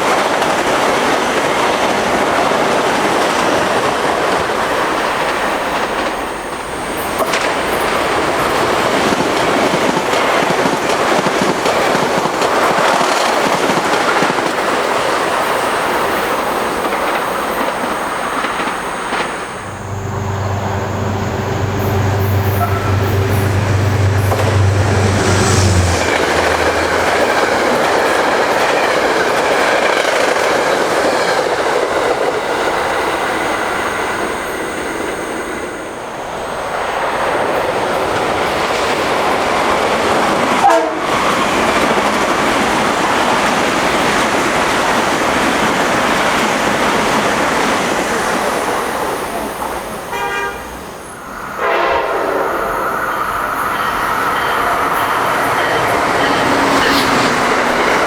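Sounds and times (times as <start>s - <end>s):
trains passing at speed: 0.0s - 58.0s.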